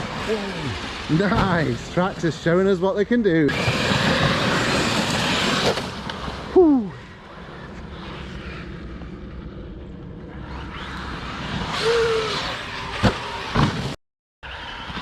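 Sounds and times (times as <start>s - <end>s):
electric motor whining: 3.5s - 6.6s, 10.2s - 15.0s
toy truck low rumble: 3.5s - 15.0s.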